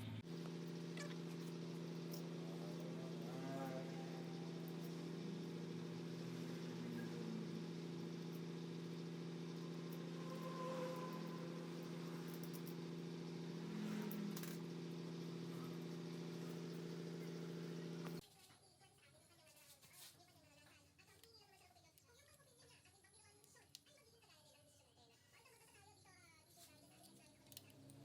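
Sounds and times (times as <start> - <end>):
low mechanical hum: 0.0 - 18.2.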